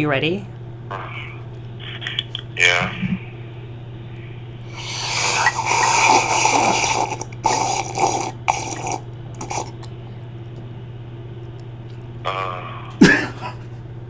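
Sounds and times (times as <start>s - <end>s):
low electrical hum: 0.0s - 14.0s
wet slurping mouth noises: 4.7s - 10.0s.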